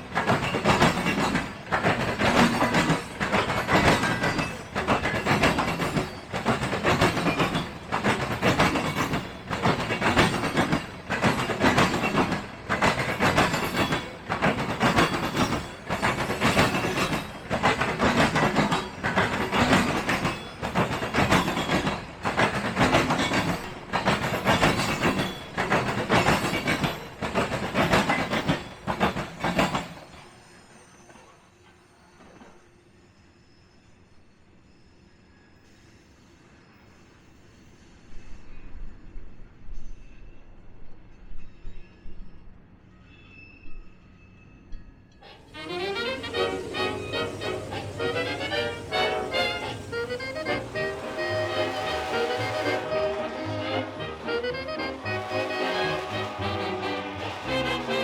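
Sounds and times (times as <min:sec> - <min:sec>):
train wheels clacking over rail joints: 0:00.0 - 0:30.3, 0:45.2 - 0:58.0.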